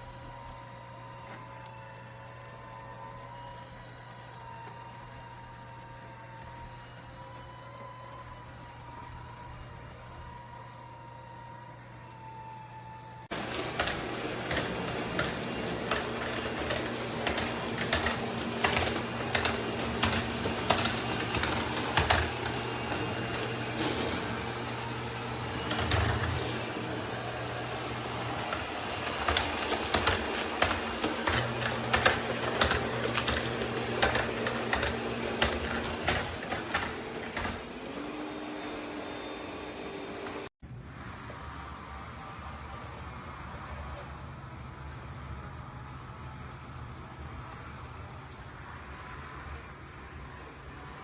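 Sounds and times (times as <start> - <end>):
robot vacuum motor hum: 0.0 - 40.5.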